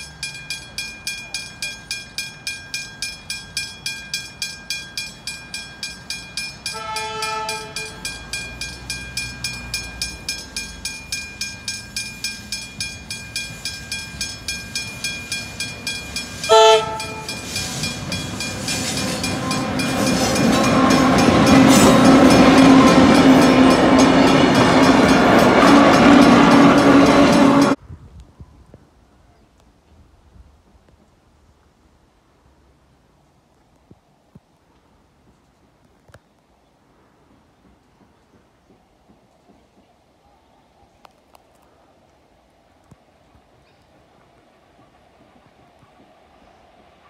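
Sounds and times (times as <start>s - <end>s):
level crossing bell ringing: 0.0s - 27.8s
train rumble and wheel clatter: 0.0s - 27.8s, 37.1s - 40.4s, 42.8s - 47.0s
train horn: 6.7s - 8.0s, 16.4s - 27.8s.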